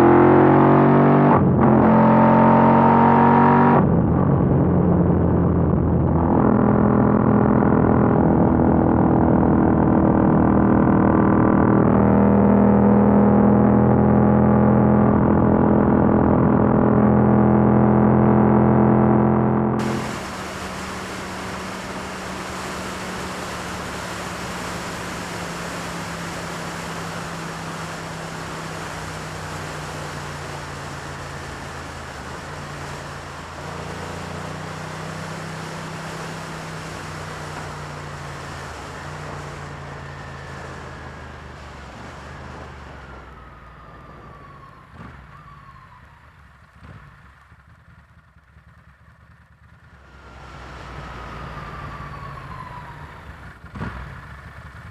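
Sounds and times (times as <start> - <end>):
motorcycle engine running: 19.3 - 43.0, 46.5 - 50.4, 53.2 - 54.9.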